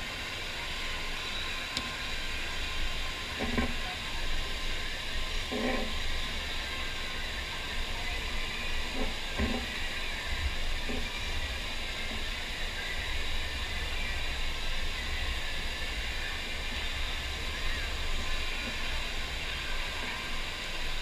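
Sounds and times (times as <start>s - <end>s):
water rushing hiss: 0.0s - 21.0s.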